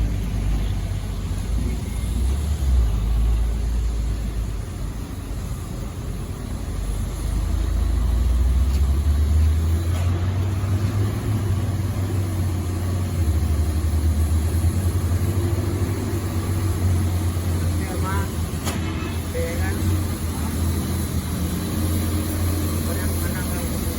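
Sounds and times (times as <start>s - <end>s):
truck engine humming: 0.0s - 23.9s.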